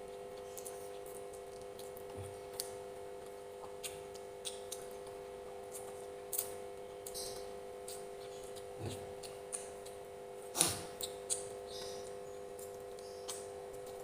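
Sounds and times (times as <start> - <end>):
steady low hum: 0.0 - 14.0
wet chewing mouth clicks: 3.6 - 5.1.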